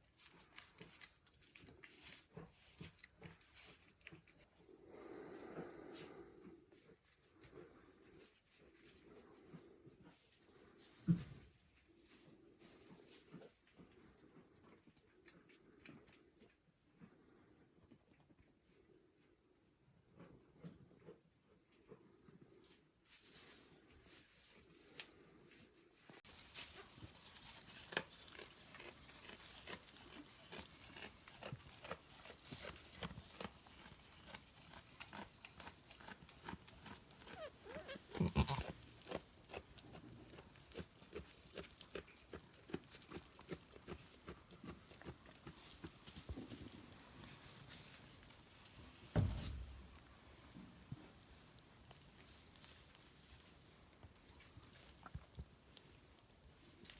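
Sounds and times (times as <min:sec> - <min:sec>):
goat hooves clicking and rustling: 0:26.0 - 0:56.9.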